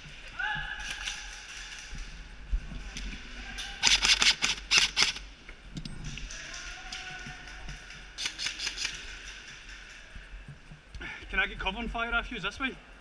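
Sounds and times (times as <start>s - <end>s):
airsoft gun rapid shots: 3.8s - 5.2s, 8.2s - 9.2s.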